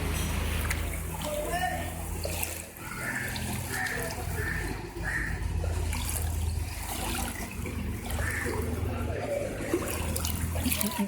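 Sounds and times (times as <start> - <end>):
water running and trickling: 0.0 - 11.0.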